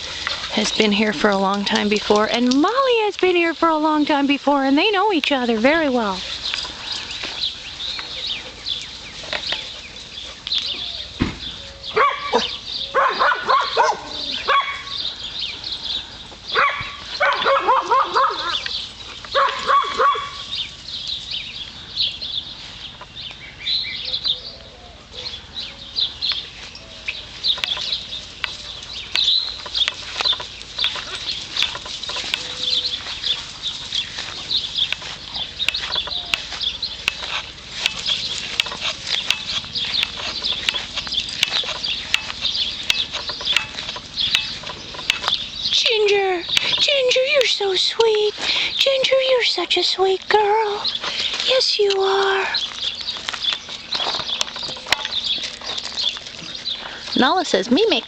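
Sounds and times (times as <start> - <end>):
steady high chirping: 18.5 - 58.0
animal calls: 26.8 - 46.8.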